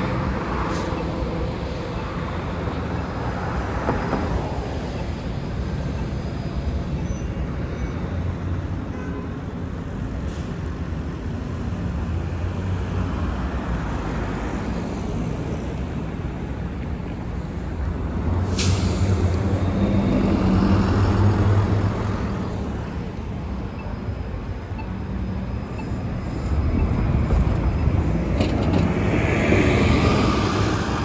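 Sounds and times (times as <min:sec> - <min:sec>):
road noise from passing vehicles: 0:00.0 - 0:31.0
diesel engine rumble: 0:15.2 - 0:31.0.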